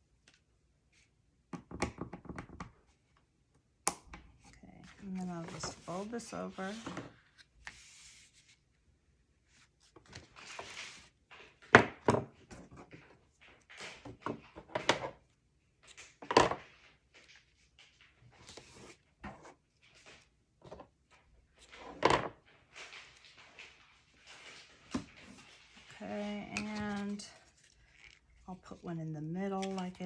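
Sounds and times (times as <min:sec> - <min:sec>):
paper rustling: 0:04.8 - 0:15.0, 0:15.8 - 0:30.0.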